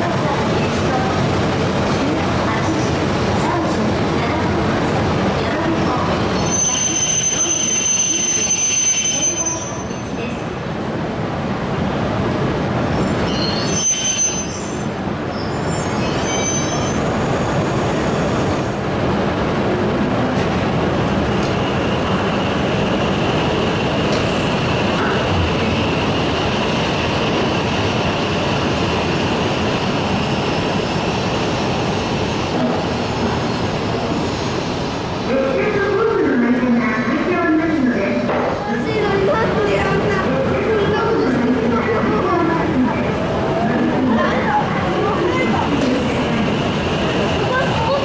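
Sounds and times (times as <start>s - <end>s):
rumble of wheels on rail: 0.0s - 48.0s
high wheel squeal: 6.4s - 10.2s, 13.0s - 18.4s.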